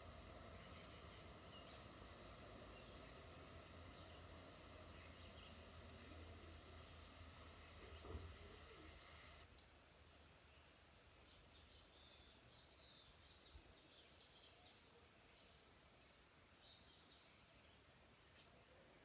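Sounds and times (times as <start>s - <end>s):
background hum: 0.0s - 9.5s
background hiss: 0.0s - 9.8s
small birds chirping: 0.0s - 10.0s.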